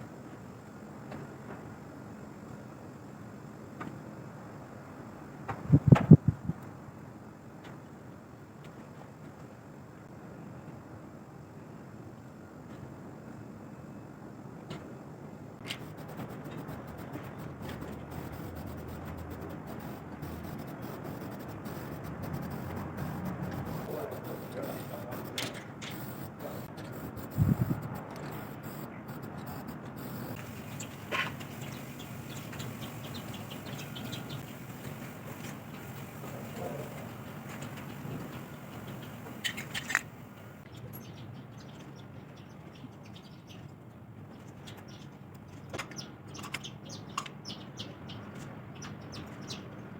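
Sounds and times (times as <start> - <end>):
birds chirping faintly: 15.8 - 41.7.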